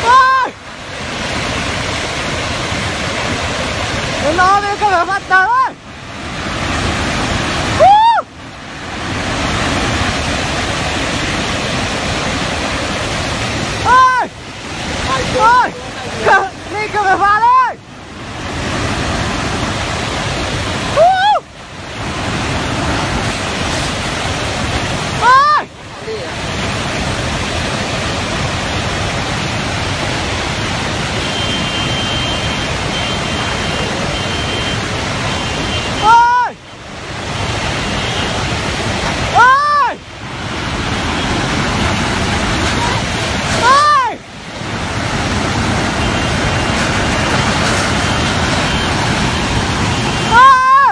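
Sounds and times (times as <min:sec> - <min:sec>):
person crying out: 0:00.0 - 0:00.6, 0:07.8 - 0:08.3, 0:13.8 - 0:14.3, 0:21.0 - 0:21.4, 0:25.2 - 0:25.7, 0:36.0 - 0:36.5, 0:39.3 - 0:40.0, 0:43.6 - 0:44.2, 0:50.3 - 0:50.9
fast-flowing floodwater rushing: 0:00.0 - 0:50.9.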